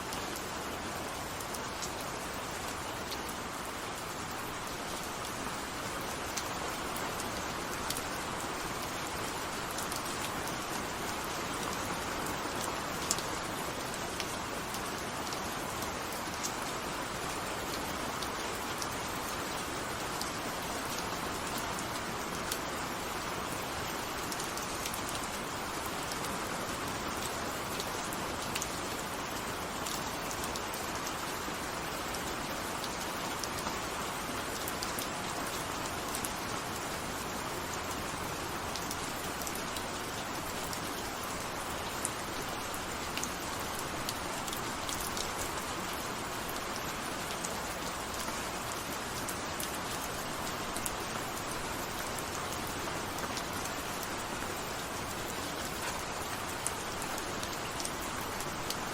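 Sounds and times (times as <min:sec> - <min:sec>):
rain drops ticking: 0:00.0 - 0:58.9
steady rain hiss: 0:00.0 - 0:58.9.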